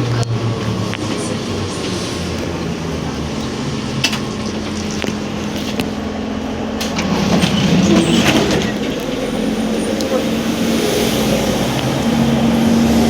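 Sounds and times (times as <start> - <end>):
trolleybus running with hum: 0.0 - 13.0
knocks and rattles: 6.8 - 10.3.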